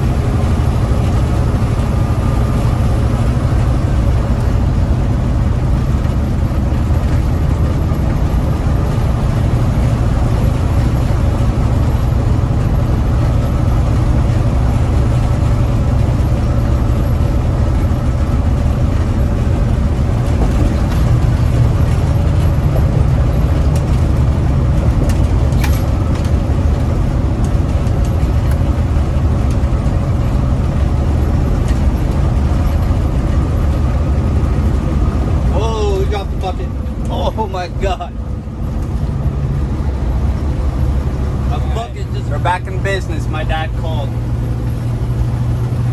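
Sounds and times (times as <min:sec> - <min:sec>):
road noise: 0:00.0 - 0:45.9
truck diesel engine drone: 0:00.0 - 0:45.9.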